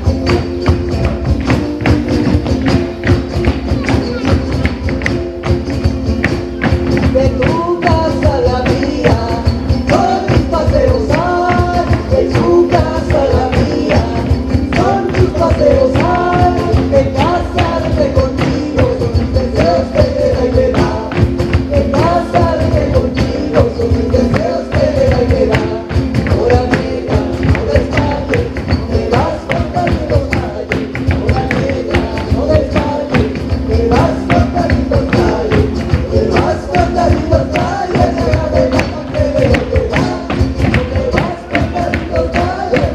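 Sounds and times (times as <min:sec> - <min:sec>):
live band playing latin music: 0:00.0 - 0:42.9.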